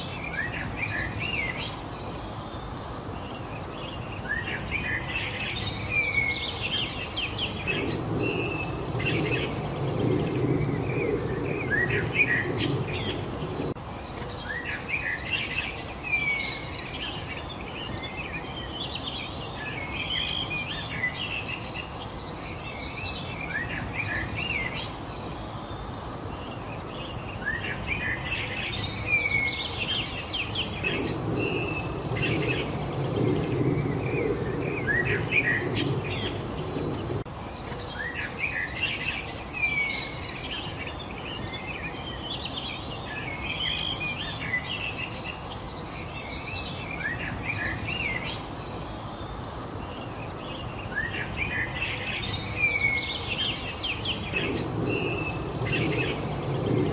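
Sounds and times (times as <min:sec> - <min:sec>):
outdoor background rush: 0:00.0 - 0:56.9
songbirds chirping and trilling: 0:00.0 - 0:56.9.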